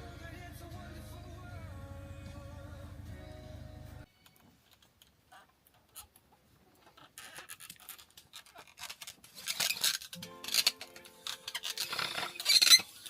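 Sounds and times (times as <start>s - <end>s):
background music: 0.0s - 4.1s, 10.2s - 12.6s
scratching rasping strokes: 6.8s - 13.0s.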